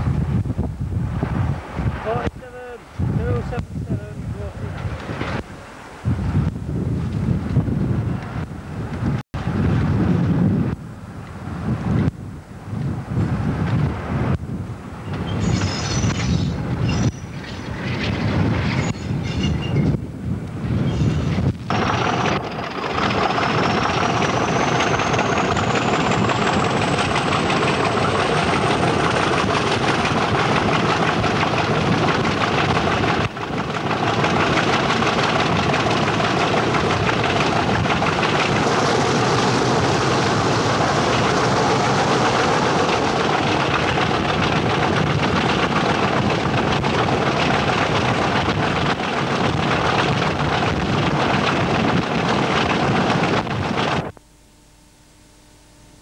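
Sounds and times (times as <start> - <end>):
wind rushing over microphone: 0.0 - 54.2
train rail noise: 14.8 - 20.0, 20.6 - 54.1.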